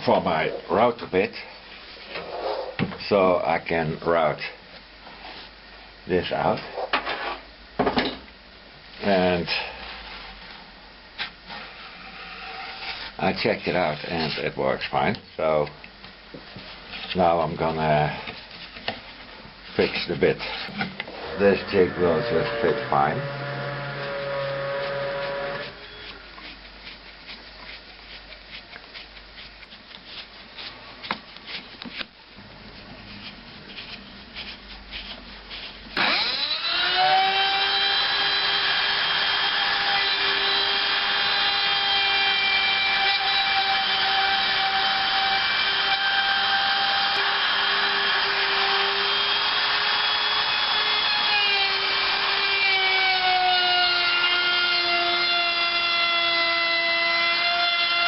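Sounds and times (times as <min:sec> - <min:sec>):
electric router whining: 0:21.1 - 0:26.2, 0:36.0 - 0:58.0.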